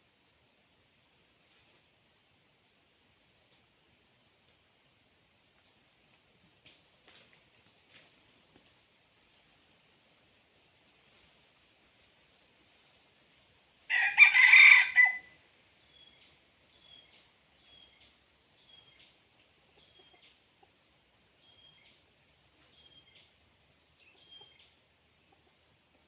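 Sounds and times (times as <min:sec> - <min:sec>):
rooster crowing: 0:13.9 - 0:15.4.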